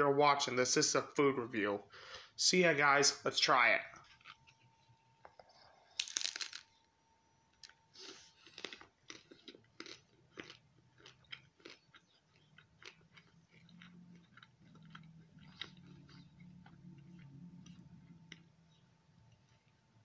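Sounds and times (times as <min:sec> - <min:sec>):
crunchy bite into taco: 0:05.9 - 0:06.7, 0:07.6 - 0:18.5
crunchy chewing: 0:07.6 - 0:19.8.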